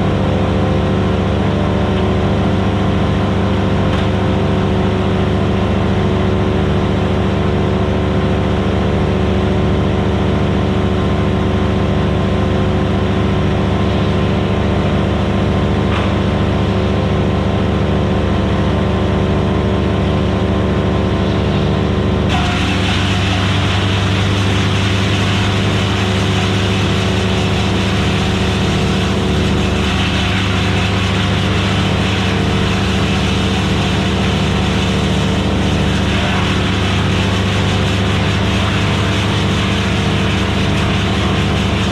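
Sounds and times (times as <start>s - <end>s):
wood chipper engine running: 0.0s - 41.9s.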